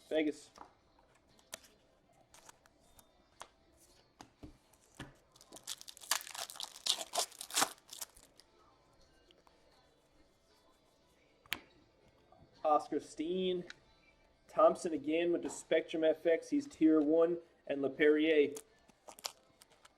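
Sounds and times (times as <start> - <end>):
foil wrapper tearing and crinkling: 5.4 - 8.4, 19.0 - 19.8.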